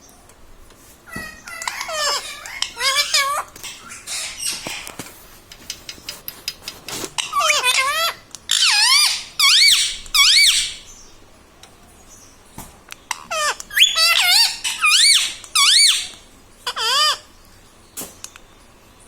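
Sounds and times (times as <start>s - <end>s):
parrot squeaky calls: 1.1s - 5.0s, 7.2s - 11.0s, 13.1s - 17.3s.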